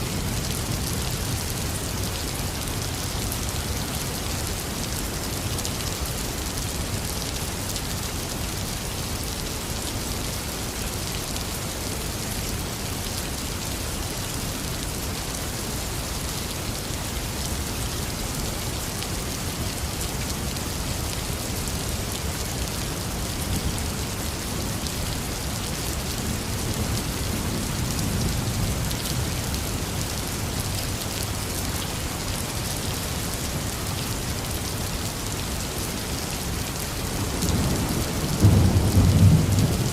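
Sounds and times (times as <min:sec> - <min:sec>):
heavy rain pouring: 0:00.0 - 0:39.9
low rumble of thunder: 0:37.4 - 0:39.9.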